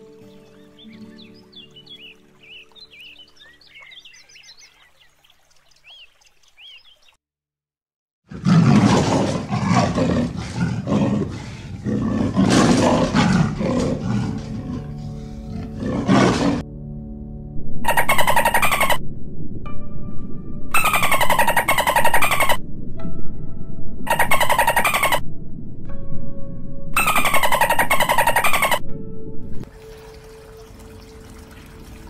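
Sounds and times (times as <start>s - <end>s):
soft background music: 0.0s - 4.6s, 12.6s - 32.0s
leopard roaring and growling: 8.3s - 16.7s.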